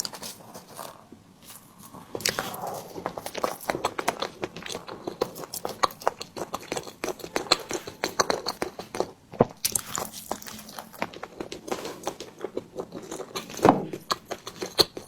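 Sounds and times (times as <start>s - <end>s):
person chewing wetly: 0.0s - 15.0s.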